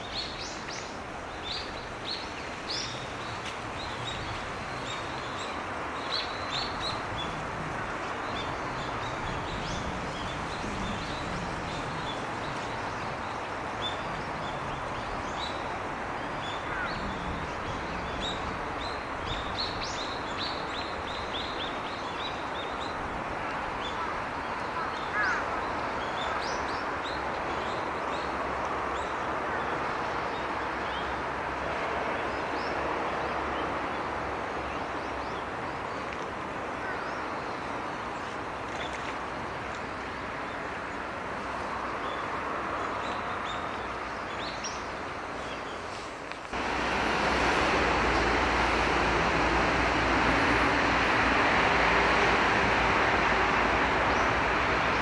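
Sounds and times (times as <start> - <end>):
steady rushing background noise: 45.9 - 54.0.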